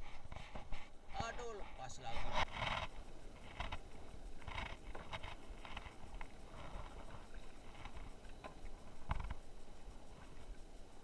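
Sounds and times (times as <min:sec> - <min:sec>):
knocks and taps in canoe: 0:00.2 - 0:09.4.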